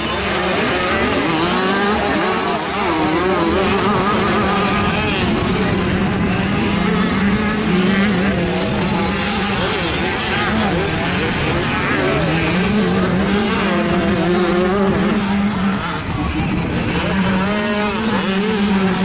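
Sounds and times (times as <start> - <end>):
two-stroke dirt bikes revving: 0.0 - 19.0.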